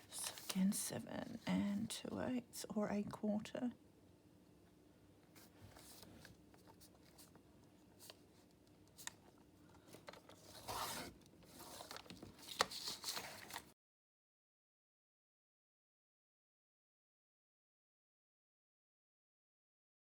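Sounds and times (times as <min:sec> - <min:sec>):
paper rustling and tearing: 0:10.2 - 0:13.7.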